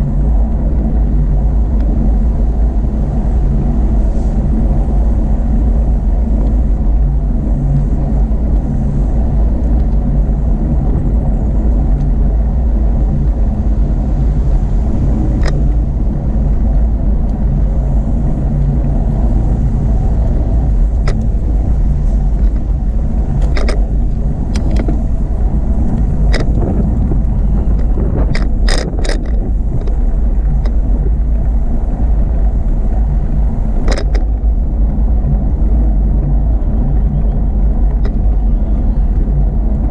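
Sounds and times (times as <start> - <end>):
bicycle rolling noise: 0.0 - 39.9
wind rumble on microphone: 0.0 - 39.9
sharp clicks and rattles: 15.2 - 17.6, 18.4 - 36.4, 37.6 - 38.4.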